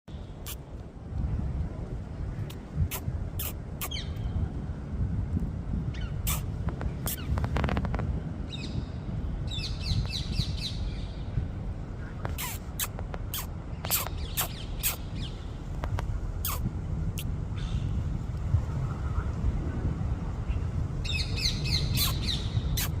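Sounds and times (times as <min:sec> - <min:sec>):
birds chirping: 0:02.4 - 0:04.4, 0:08.4 - 0:11.4, 0:12.0 - 0:15.7, 0:20.4 - 0:23.0.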